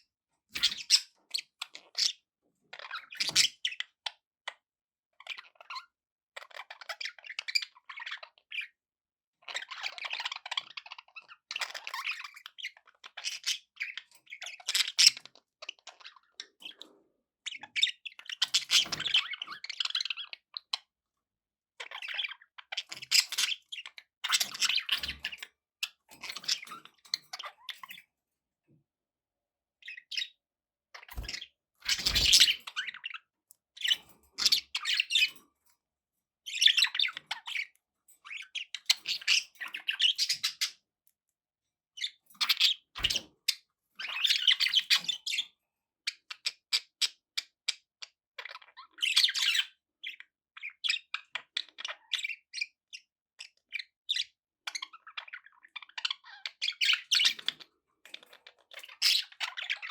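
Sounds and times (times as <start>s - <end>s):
clicky bird chatter: 0.5s - 2.2s, 9.4s - 20.9s, 21.8s - 28.1s, 31.0s - 35.8s, 36.5s - 41.2s, 42.0s - 52.8s, 53.5s - 59.9s
budgerigars chirping and warbling: 0.5s - 4.6s, 5.2s - 8.8s, 9.4s - 20.9s, 21.8s - 28.2s, 29.8s - 35.8s, 36.4s - 40.9s, 42.0s - 59.9s.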